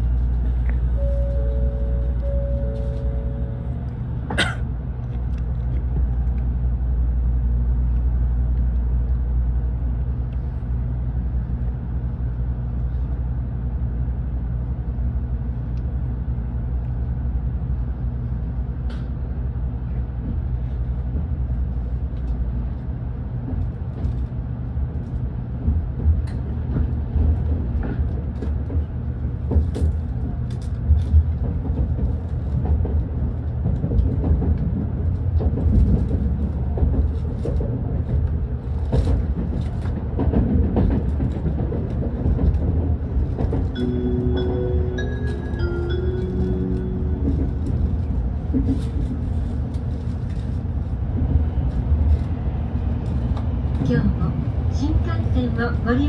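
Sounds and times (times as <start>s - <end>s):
train low hum: 0.0s - 56.0s
wheels rumbling on rail: 0.0s - 56.0s.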